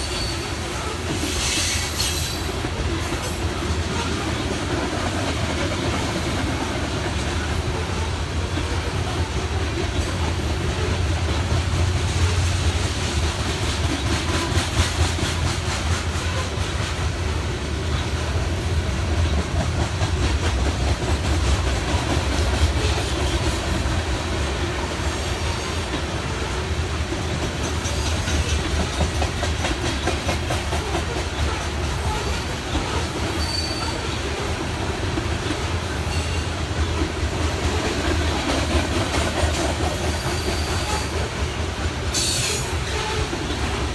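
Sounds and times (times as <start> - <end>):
train wheels rumbling on rail: 0.0 - 43.9
wheel squeals: 31.5 - 34.2.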